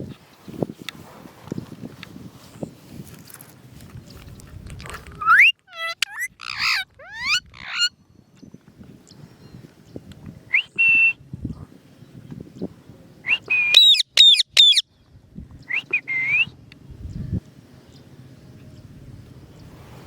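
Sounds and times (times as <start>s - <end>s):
parrot whistling: 5.2s - 7.9s, 15.7s - 16.5s.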